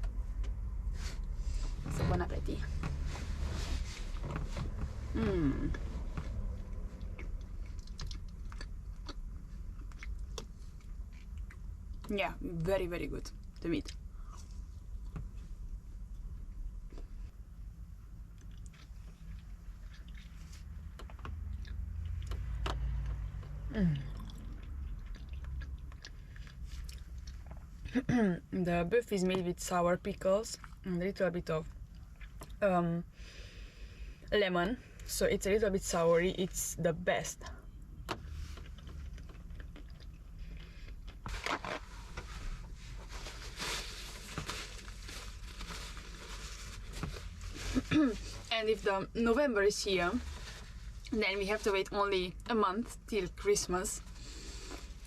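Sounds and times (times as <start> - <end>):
steady low hum: 0.0 - 55.0
person chewing food: 6.6 - 12.1, 18.3 - 27.9, 31.8 - 32.6, 38.6 - 41.3.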